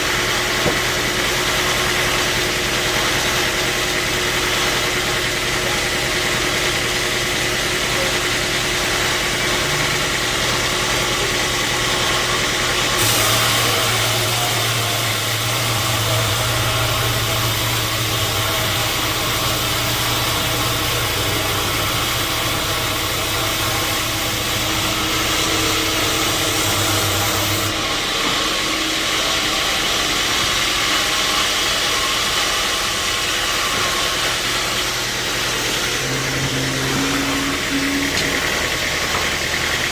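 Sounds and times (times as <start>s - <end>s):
sawmill saw running: 0.0s - 39.9s
loud hiss: 13.0s - 27.7s
low hum: 35.0s - 39.2s.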